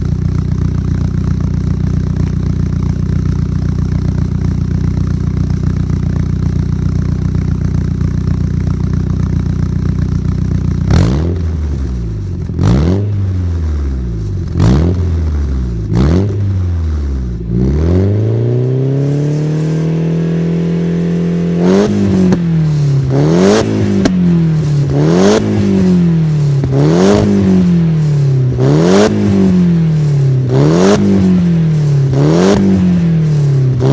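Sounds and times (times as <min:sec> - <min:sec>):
car engine idling: 0:00.0 - 0:33.9
car engine revving in blips: 0:10.7 - 0:33.9.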